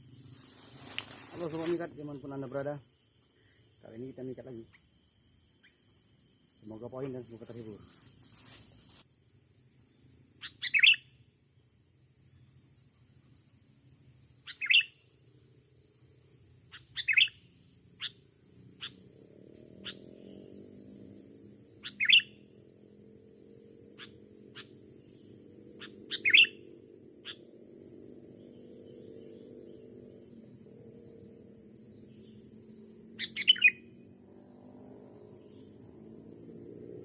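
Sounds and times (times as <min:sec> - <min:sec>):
bird chirping: 0:10.3 - 0:11.2, 0:14.4 - 0:15.2, 0:16.7 - 0:19.0, 0:21.8 - 0:22.6, 0:23.9 - 0:27.5, 0:28.3 - 0:30.0, 0:32.0 - 0:34.0, 0:35.3 - 0:35.9.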